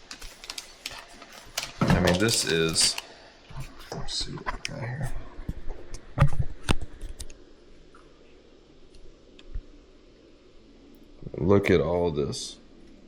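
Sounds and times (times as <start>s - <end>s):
plastic packages clicking and tapping: 0.0s - 3.1s.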